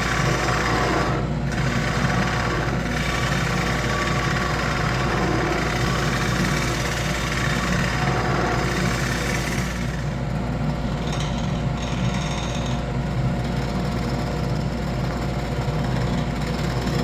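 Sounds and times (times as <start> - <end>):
wood lathe motor humming: 0.0 - 10.2.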